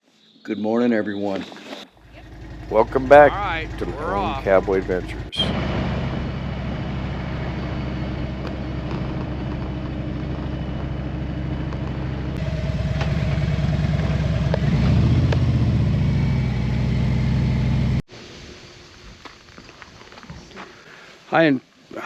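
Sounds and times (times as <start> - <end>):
motorcycle engine running: 2.0 - 18.0.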